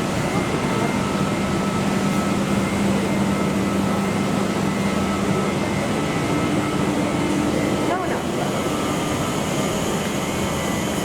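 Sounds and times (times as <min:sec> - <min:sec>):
train rumble and hum: 0:00.0 - 0:11.0.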